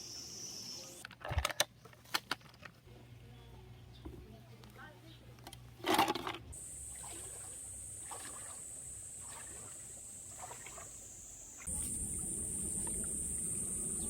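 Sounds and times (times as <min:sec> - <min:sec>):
insect chorus buzzing: 0:00.0 - 0:01.0, 0:06.6 - 0:14.0.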